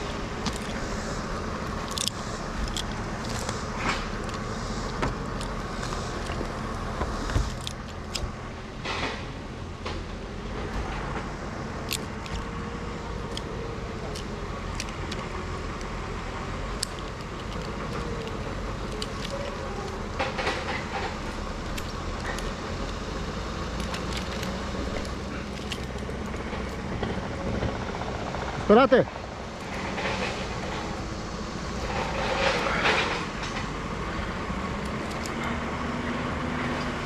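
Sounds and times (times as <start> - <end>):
low engine rumble: 0.0 - 37.0
light metallic clicks: 11.8 - 27.0.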